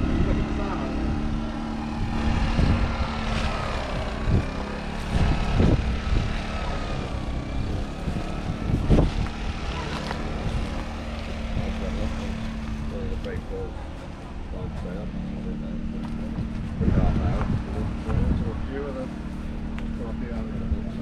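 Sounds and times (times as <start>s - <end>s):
tractor diesel engine running: 0.0s - 21.0s
low thumps: 1.5s - 6.6s.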